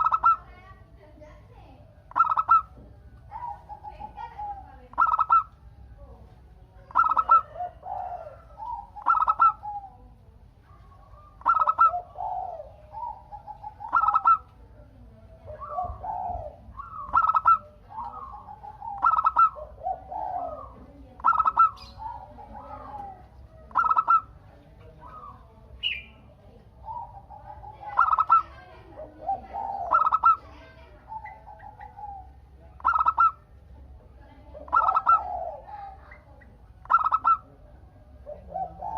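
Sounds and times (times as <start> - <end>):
bird chirp: 0.0 - 0.7, 1.6 - 6.0, 6.7 - 33.7, 34.6 - 38.9
doves cooing: 0.0 - 38.9.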